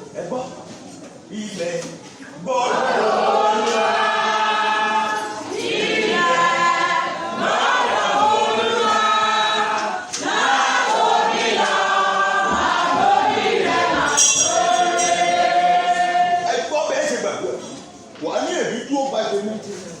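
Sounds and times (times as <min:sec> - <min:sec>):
choir singing gospel: 0:02.4 - 0:17.8.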